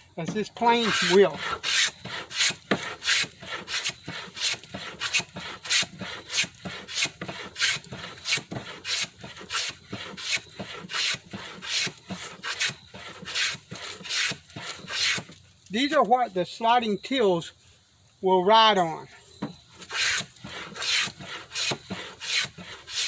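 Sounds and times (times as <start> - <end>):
hand plane scraping wood: 0.2 - 15.4, 19.8 - 23.0.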